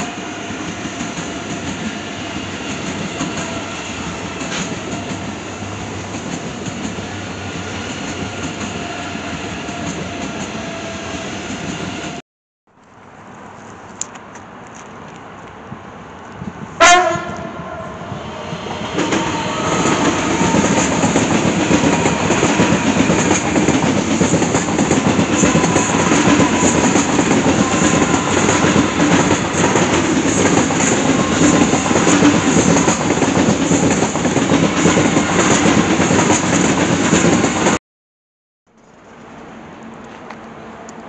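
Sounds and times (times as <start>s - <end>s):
train wheels rolling on rails: 0.0s - 12.2s, 13.1s - 37.8s
train horn blast: 16.8s - 23.4s, 25.3s - 29.6s.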